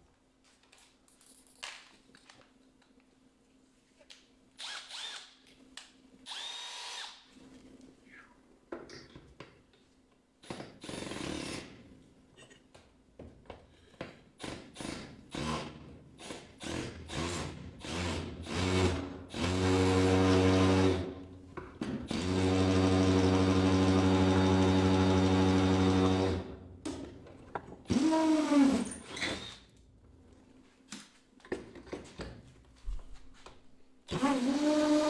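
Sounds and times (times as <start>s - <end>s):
power drill boring: 4.6s - 5.3s, 6.3s - 7.2s, 16.6s - 21.1s, 22.1s - 26.5s, 27.9s - 29.6s, 34.1s - 35.0s.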